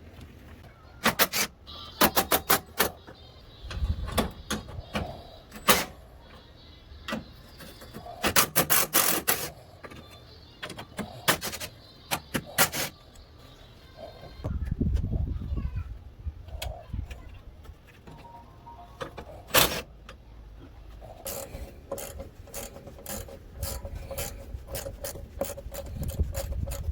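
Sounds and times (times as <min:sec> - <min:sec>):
hand tools clicking on metal: 0:21.1 - 0:26.9.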